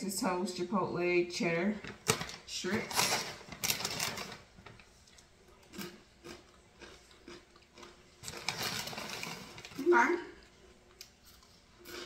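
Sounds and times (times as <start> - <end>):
person chewing crunchy food: 5.6 - 9.5.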